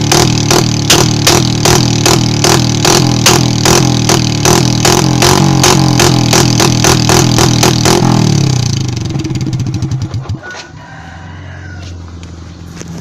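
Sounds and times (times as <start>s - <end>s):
exhaust backfire pops: 0.0s - 10.4s
engine revving with open exhaust: 0.0s - 10.6s.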